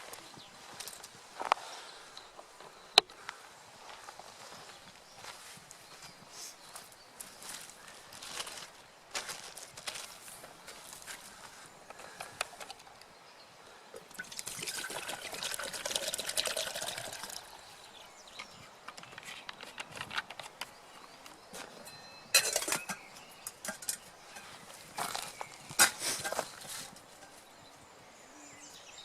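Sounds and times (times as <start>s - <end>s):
water pouring: 14.1s - 17.7s
sharp metallic clink: 21.9s - 24.4s.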